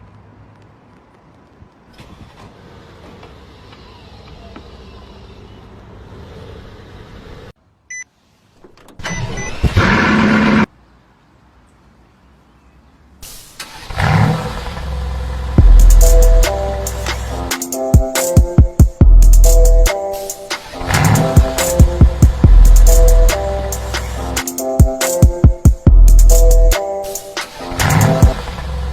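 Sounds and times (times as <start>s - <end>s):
loud rushing noise: 20.2s - 25.4s.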